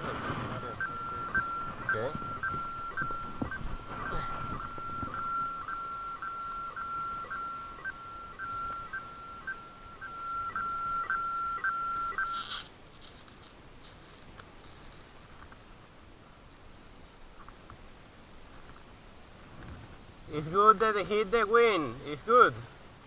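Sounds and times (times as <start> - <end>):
electronic beep tone: 0.1 - 12.6
faint handling noise: 12.1 - 15.7
rustle: 12.1 - 23.0.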